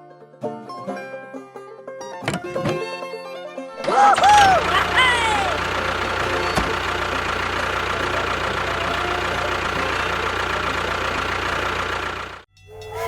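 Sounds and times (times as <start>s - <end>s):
engine idling: 3.8s - 13.0s.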